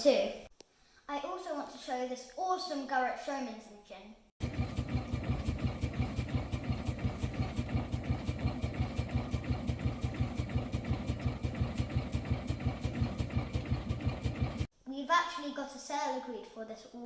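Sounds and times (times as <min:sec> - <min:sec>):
steam traction engine running: 0:04.4 - 0:14.7.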